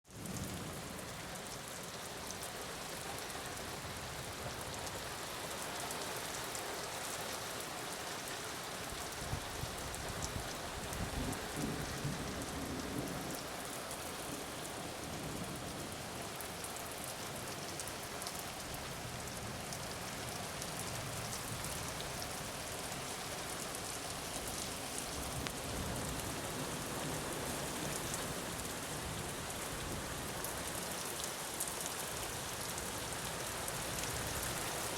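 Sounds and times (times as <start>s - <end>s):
heavy rain falling: 0.1s - 34.9s
low rumble of thunder: 10.8s - 13.5s.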